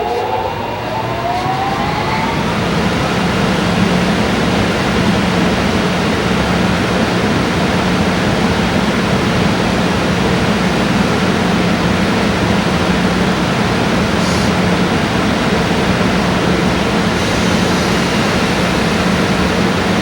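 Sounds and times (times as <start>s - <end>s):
freight train rushing with hum: 0.0s - 20.0s.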